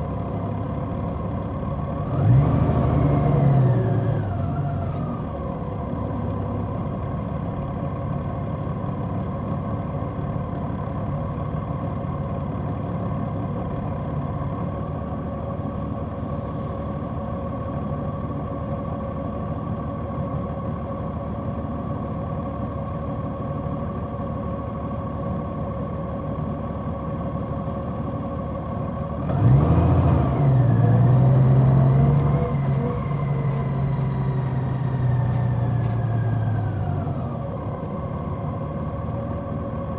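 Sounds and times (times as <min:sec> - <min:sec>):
motorcycle engine running: 0:32.0 - 0:37.9.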